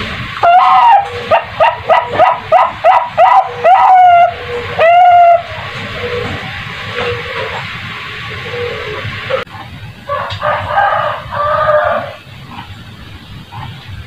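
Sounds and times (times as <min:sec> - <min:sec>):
animal calling and yelping: 0:00.4 - 0:07.7.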